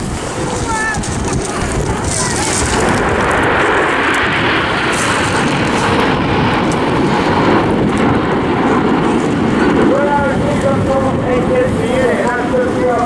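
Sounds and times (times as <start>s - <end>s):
jet aircraft flying: 0.0s - 13.0s.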